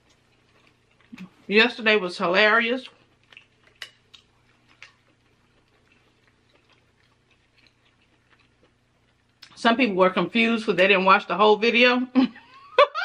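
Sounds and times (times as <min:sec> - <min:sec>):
crab legs clicking and crackling: 0:02.9 - 0:09.6.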